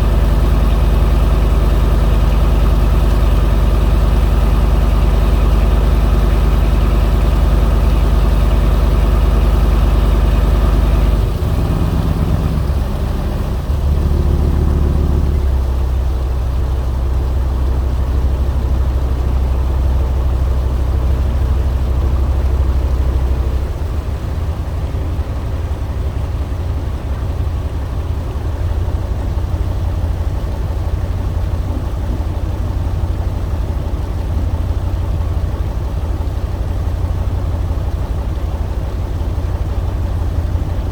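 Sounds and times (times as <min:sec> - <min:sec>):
boat engine running: 0:24.7 - 0:40.9.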